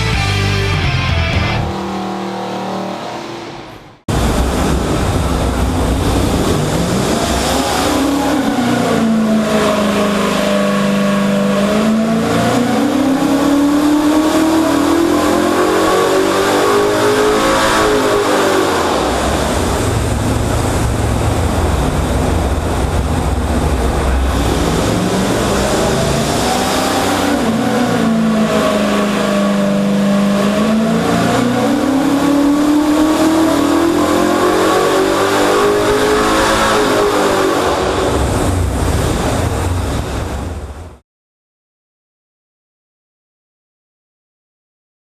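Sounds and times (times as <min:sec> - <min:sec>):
music: 0:00.0 - 0:01.7
loud car engine revving: 0:00.0 - 0:40.8.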